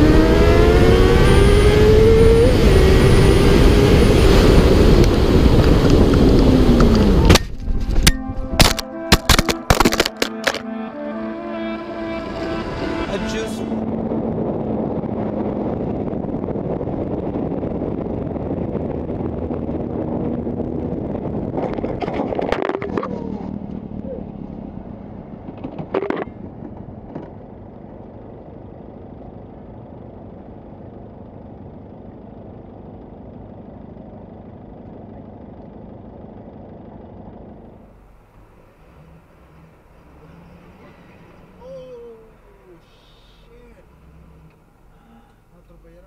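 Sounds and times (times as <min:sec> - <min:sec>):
motorcycle engine running: 0:13.7 - 0:45.5.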